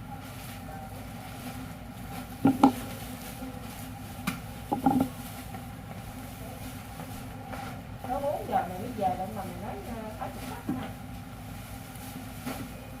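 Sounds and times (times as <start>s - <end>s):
machine hum: 1.1s - 6.0s
short knocks: 2.4s - 2.8s, 4.7s - 5.1s.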